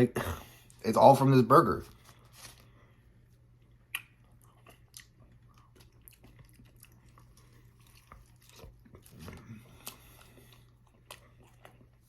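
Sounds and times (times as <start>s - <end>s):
low steady hum: 0.0s - 12.0s
chewing food: 3.6s - 12.0s
wet mouth clicks: 3.9s - 5.1s.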